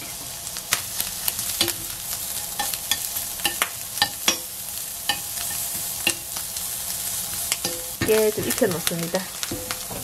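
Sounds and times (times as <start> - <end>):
shrimp sizzling in a frying pan: 0.0 - 10.0
metal tongs clicking on a pan: 2.6 - 4.5, 5.1 - 6.4, 7.4 - 9.8.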